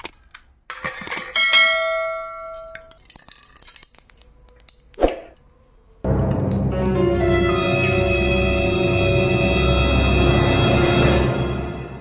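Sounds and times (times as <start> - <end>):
metal cookware ringing: 1.2 - 2.9.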